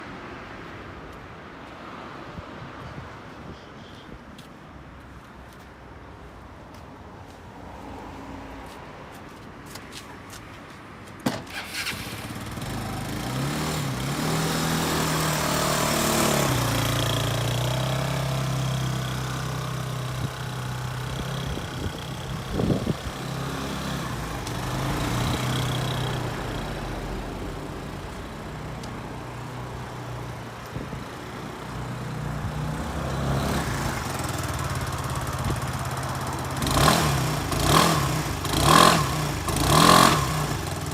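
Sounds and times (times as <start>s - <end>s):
scooter engine starting and idling: 11.3s - 26.8s, 32.9s - 40.9s
scooter engine revving: 11.5s - 27.0s, 32.4s - 40.9s.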